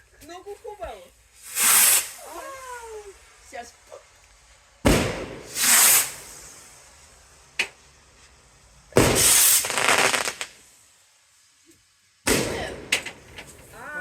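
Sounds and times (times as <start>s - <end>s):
firework crack: 0.0s - 14.0s
firework bangs: 1.1s - 3.6s, 4.8s - 8.0s, 8.9s - 10.8s, 12.2s - 14.0s.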